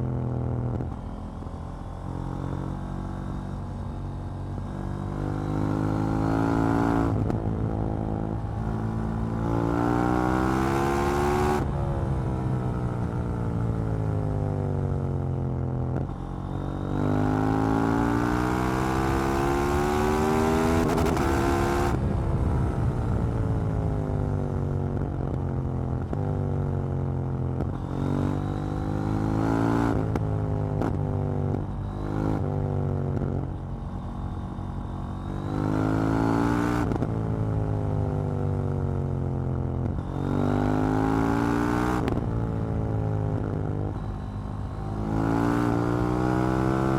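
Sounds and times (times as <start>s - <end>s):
motorcycle engine revving: 39.8s - 46.9s.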